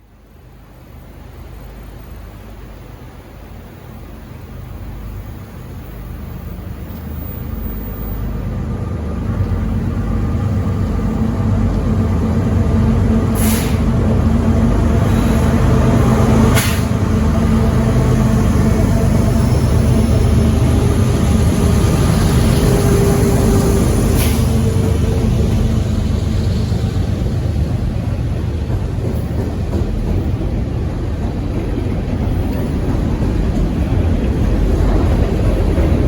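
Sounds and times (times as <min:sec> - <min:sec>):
freight train rumbling past: 0:00.1 - 0:36.0
short sharp hissing: 0:13.4 - 0:13.9, 0:16.6 - 0:17.0.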